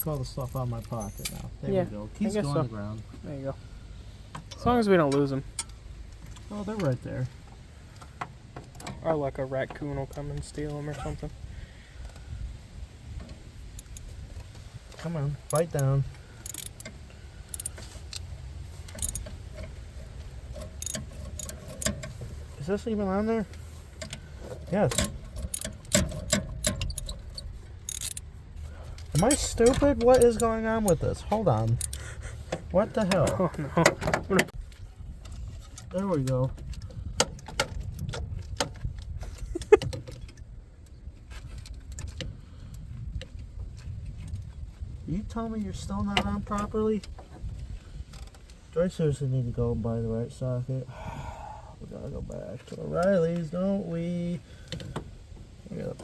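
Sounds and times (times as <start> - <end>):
low steady rumble: 0.0 - 56.0
ratchet clicking against metal: 13.8 - 14.1, 15.4 - 19.3, 20.5 - 22.0, 24.9 - 28.3, 31.6 - 32.0.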